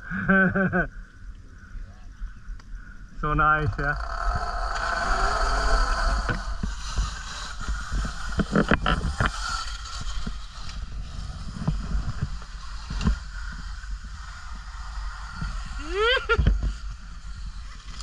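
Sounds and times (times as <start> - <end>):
wind buffeting microphone: 1.4 - 18.0.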